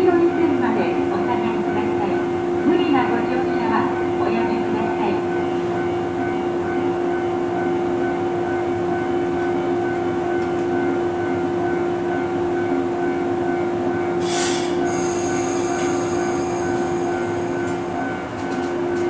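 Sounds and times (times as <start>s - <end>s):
electric train humming: 0.0s - 19.0s.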